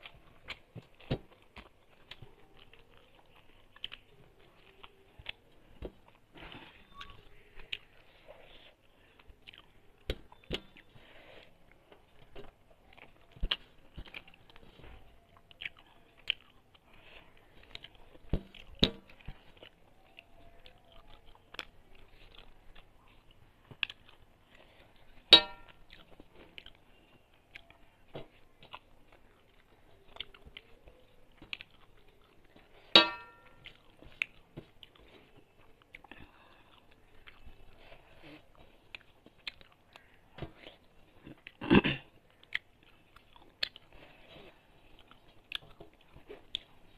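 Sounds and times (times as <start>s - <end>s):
chewing food: 0.0s - 46.9s
metal plate clinking: 25.4s - 25.7s, 33.0s - 33.5s.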